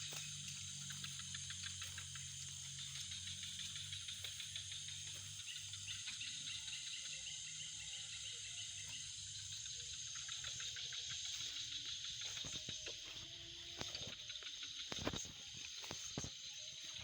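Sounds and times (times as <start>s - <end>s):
crickets and insects trilling: 0.0s - 17.0s
quick pulsing insect call: 0.0s - 17.0s.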